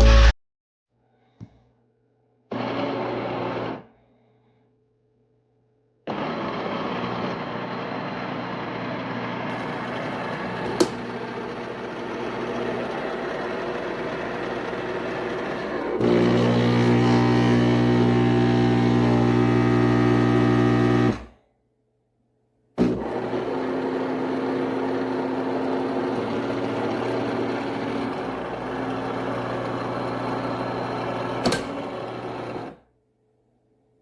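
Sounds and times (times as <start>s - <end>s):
coffee maker buzzing hum: 9.5s - 21.3s, 22.8s - 32.8s
coffee maker whirring: 9.5s - 21.3s, 22.8s - 32.8s.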